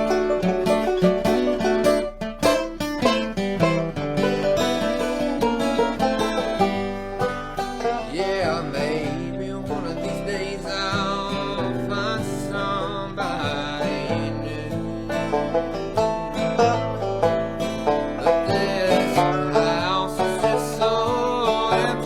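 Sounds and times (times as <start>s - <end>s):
bluegrass band playing: 0.0s - 22.0s.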